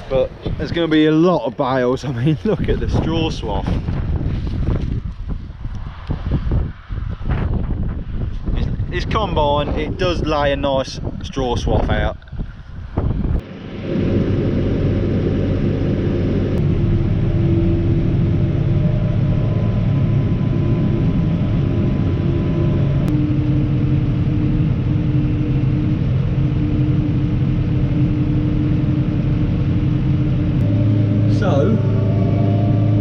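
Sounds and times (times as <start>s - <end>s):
tractor engine droning: 8.4s - 33.0s.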